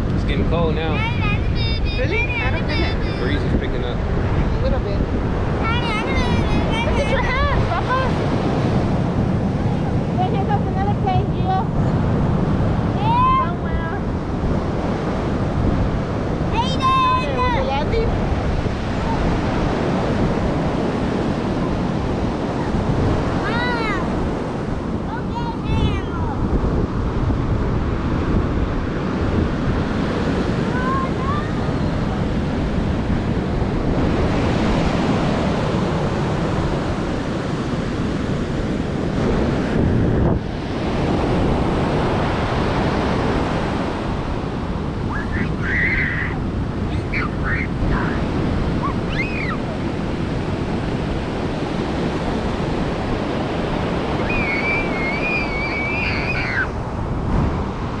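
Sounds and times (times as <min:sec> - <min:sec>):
ocean surf washing onto beach: 0:00.0 - 0:58.0
wind buffeting microphone: 0:00.0 - 0:58.0
high wavering whistle-like call: 0:54.2 - 0:56.7.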